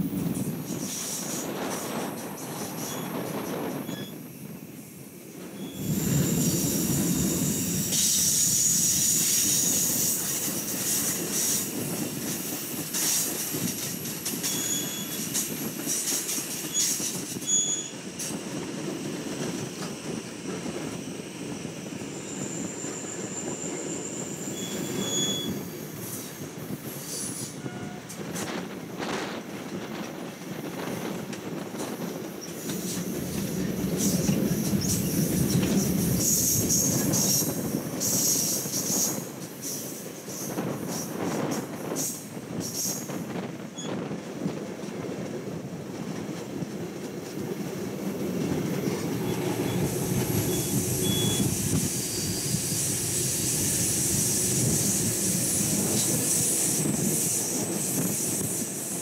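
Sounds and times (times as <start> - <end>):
train cars rumbling: 0.0 - 59.0
high wheel squeal: 2.3 - 4.3, 5.5 - 18.4, 20.0 - 28.2, 32.4 - 41.2, 48.1 - 59.0
sharp clicks from rails: 9.2 - 17.6, 27.1 - 51.9.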